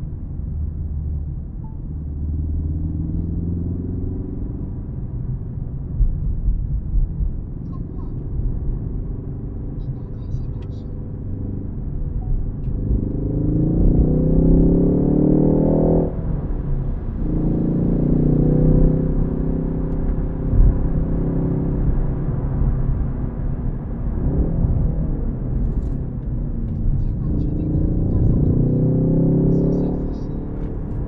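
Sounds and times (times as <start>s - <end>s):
car engine accelerating: 0.0s - 31.0s
tyre and road rumble: 20.0s - 31.0s.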